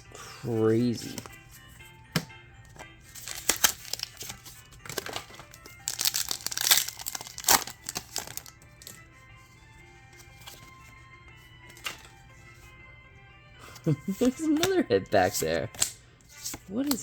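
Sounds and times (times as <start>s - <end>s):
quiet background music: 0.0s - 17.0s
foil wrapper crinkling: 3.1s - 9.0s.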